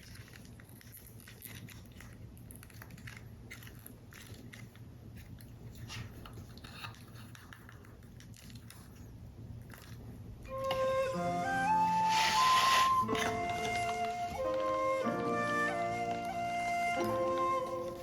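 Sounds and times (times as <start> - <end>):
card paper crackling: 11.7 - 18.0.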